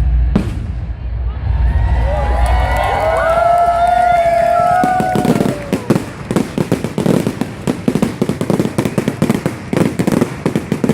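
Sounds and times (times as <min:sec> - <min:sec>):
firework crackle: 0:02.8 - 0:10.9
whistling firework shells: 0:04.2 - 0:10.9.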